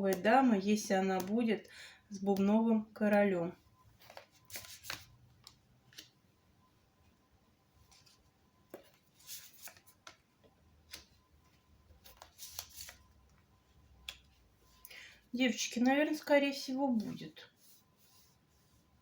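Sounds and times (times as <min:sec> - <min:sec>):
cards rustling: 0:04.0 - 0:06.2, 0:07.8 - 0:10.3, 0:11.9 - 0:13.2.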